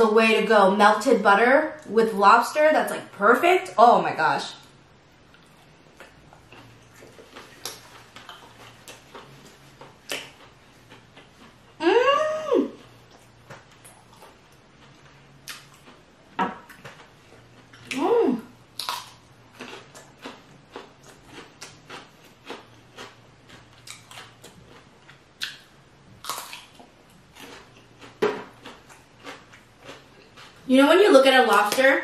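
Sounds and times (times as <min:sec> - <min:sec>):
wet mouth clicks and smacks: 0:25.4 - 0:25.7.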